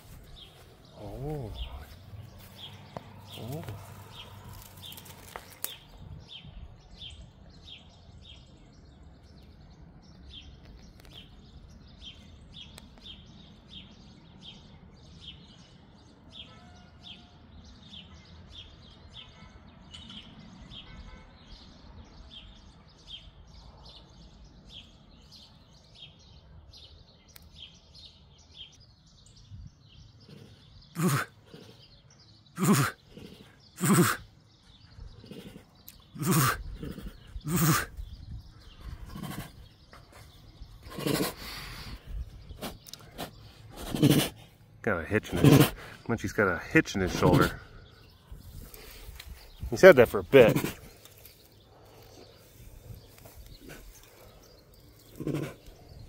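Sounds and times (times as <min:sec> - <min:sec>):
loud short bird calls: 0:00.0 - 0:06.6, 0:30.1 - 0:56.0
bird chirping: 0:00.0 - 0:56.0
faint outdoor background: 0:00.0 - 0:56.0.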